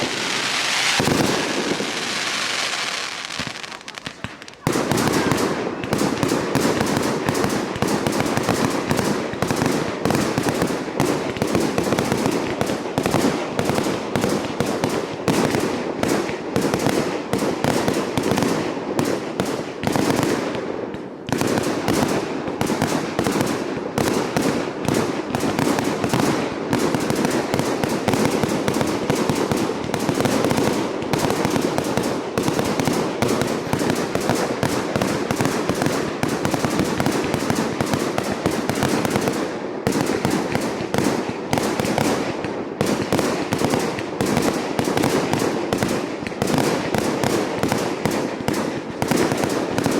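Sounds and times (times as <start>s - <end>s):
fireworks bangs and crackling: 0.0s - 49.9s.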